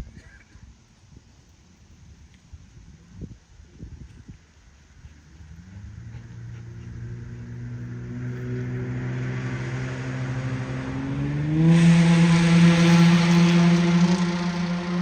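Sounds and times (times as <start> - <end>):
vehicle engine speeding up: 5.0 - 15.0.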